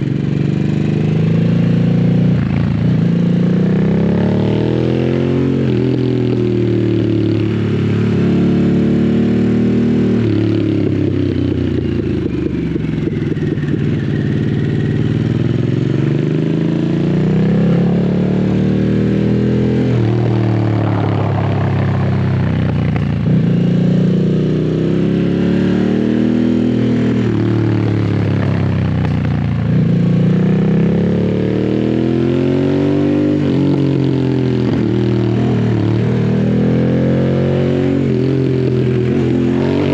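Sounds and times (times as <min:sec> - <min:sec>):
motorcycle engine accelerating: 0:00.0 - 0:39.9
wind rush: 0:18.8 - 0:23.8.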